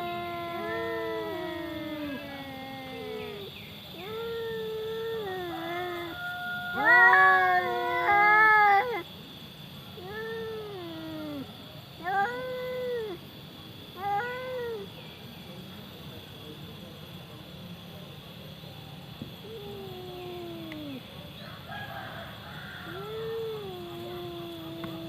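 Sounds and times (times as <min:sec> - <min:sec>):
cats yowling: 0:00.0 - 0:09.2, 0:09.9 - 0:13.3, 0:14.0 - 0:15.0, 0:19.2 - 0:25.0.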